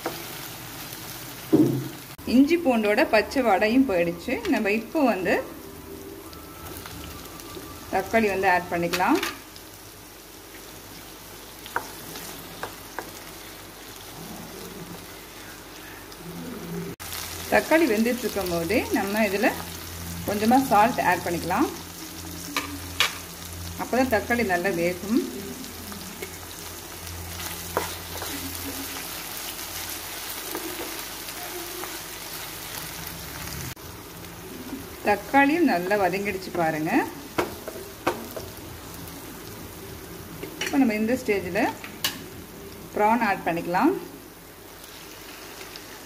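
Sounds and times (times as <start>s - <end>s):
vegetables sizzling in hot oil: 0.0s - 16.4s, 17.0s - 46.0s
spatula tapping a pan: 12.6s - 13.2s, 37.3s - 38.5s
spatula stirring in pan: 27.4s - 29.1s.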